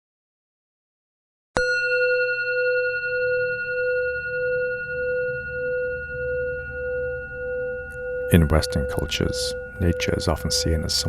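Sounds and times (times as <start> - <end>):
bell ringing: 1.6 - 11.0
low drone: 2.8 - 11.0.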